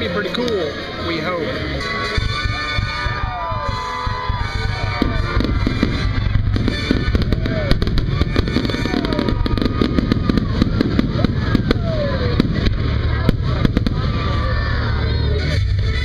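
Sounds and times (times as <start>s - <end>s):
music playing: 0.0s - 16.0s
fireworks bangs and crackles: 2.2s - 15.9s.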